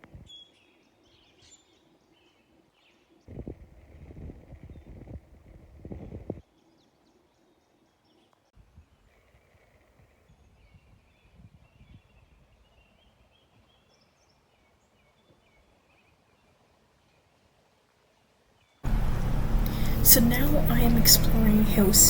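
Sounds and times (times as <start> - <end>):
low background rumble: 18.9 - 22.0.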